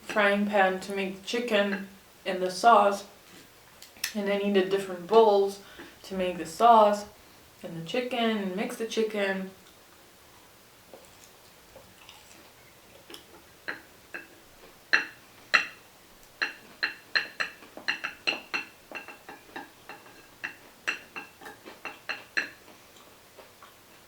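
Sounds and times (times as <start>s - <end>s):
utensil clinking against dish: 16.4s - 22.6s.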